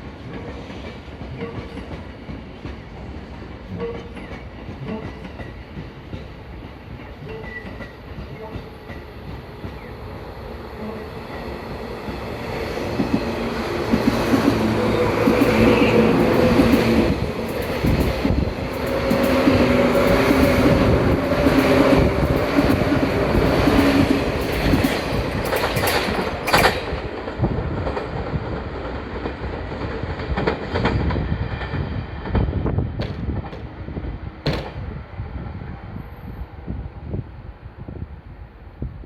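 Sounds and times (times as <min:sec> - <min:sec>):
electric train passing: 0:00.0 - 0:39.0
wheels clacking over rail joints: 0:12.1 - 0:32.4.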